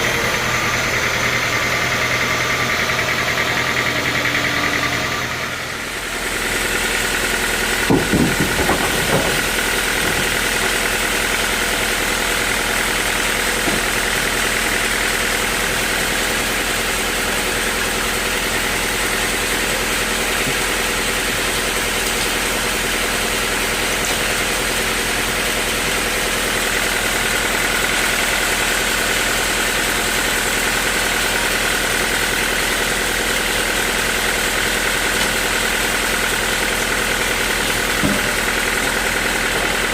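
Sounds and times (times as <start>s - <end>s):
sawmill machinery hum and whine: 0.0s - 39.9s
heavy knocks: 7.8s - 10.7s.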